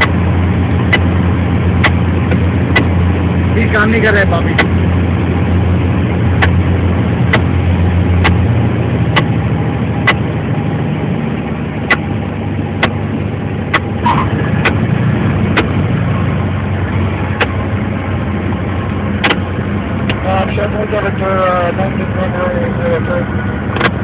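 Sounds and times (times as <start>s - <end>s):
sharp clicks: 10.0s - 10.2s.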